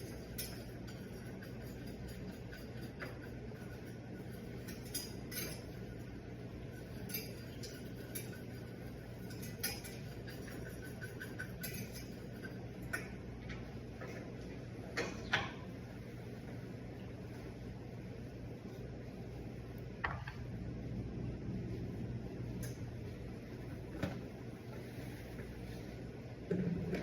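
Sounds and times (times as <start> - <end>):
steady low hum: 0.0 - 27.0
metal utensils clinking on saucepan: 4.5 - 5.8, 9.2 - 13.2.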